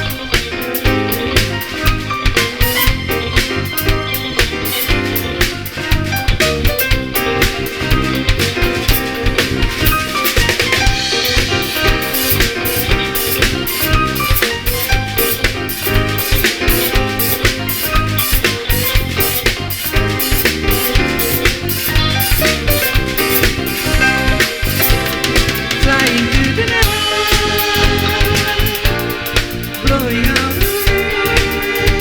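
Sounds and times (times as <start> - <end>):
band playing instrumental: 0.0 - 32.0
drum kit beat: 0.0 - 32.0.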